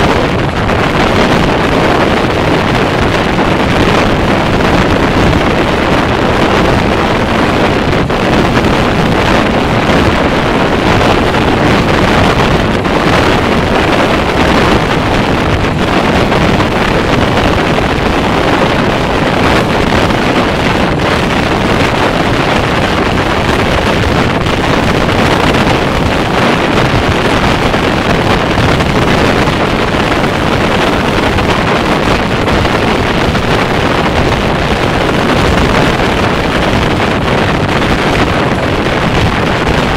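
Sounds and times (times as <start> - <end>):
train wheels rumbling on rails: 0.0 - 39.9
wind rushing on microphone: 0.0 - 39.9.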